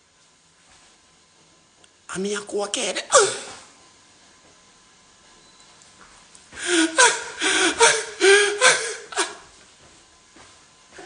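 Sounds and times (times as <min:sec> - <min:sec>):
man gasping: 0:06.6 - 0:09.4.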